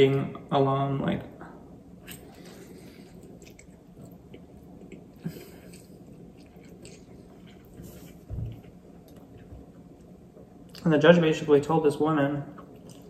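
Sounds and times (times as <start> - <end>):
person chewing: 2.0 - 10.9, 12.6 - 13.0.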